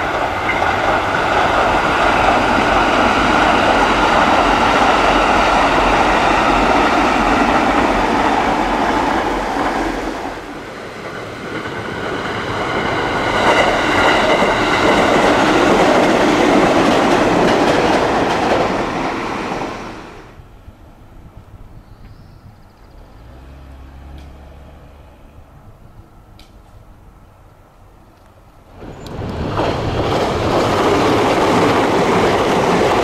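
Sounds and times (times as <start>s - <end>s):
electric train wheels clattering: 0.0s - 20.0s, 28.2s - 33.0s
train passing: 0.0s - 21.8s, 22.4s - 33.0s
train whine: 0.0s - 33.0s.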